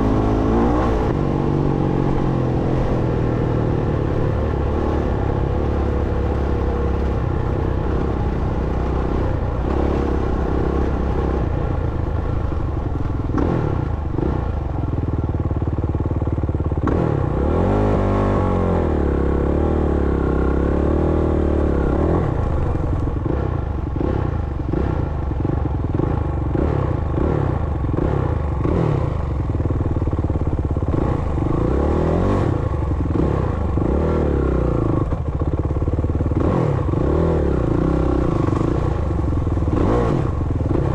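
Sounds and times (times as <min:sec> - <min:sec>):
dirt bike engine revving: 0:00.0 - 0:11.5, 0:36.3 - 0:40.9.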